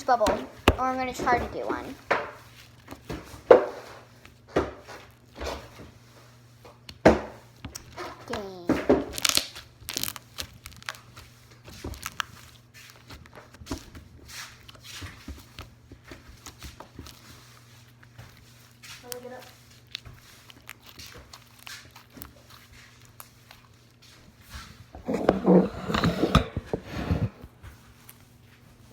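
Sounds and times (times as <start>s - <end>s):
slime squished by hand: 7.7s - 24.0s.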